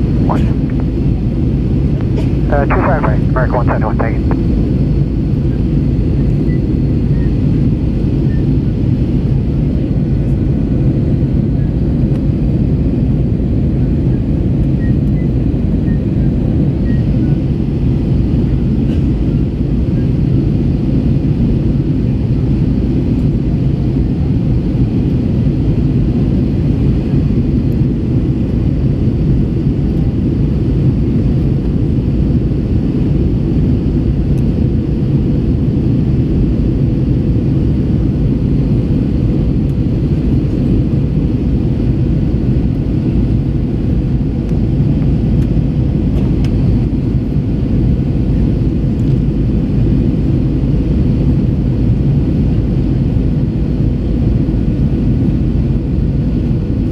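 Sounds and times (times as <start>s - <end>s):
airplane cabin engine roar: 0.0s - 56.9s
faint steady hum: 0.1s - 4.7s.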